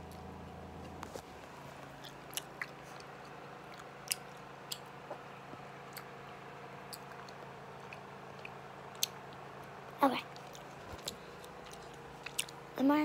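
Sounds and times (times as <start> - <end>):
faint steady hum: 0.0 - 13.0
gum chewing mouth clicks: 10.4 - 12.6.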